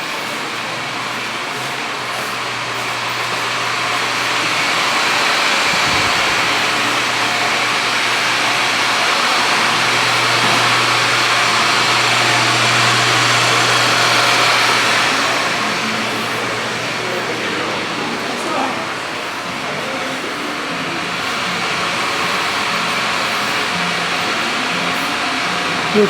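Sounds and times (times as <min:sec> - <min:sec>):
engine hum: 0:00.0 - 0:26.0
loud rushing noise: 0:02.4 - 0:20.0.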